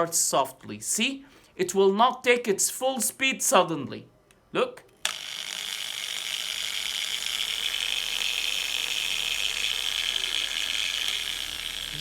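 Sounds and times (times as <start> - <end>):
angle grinder whine: 5.0 - 12.0.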